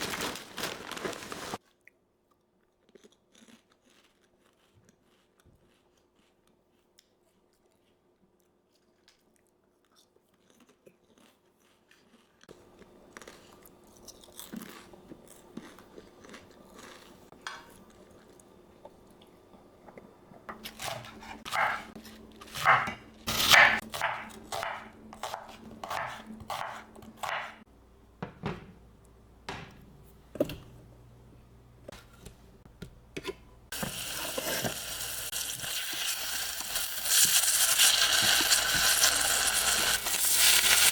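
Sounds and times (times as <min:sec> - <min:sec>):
knife knocking on cutting board: 0:28.2 - 0:28.8
pan sizzling: 0:33.7 - 0:40.9.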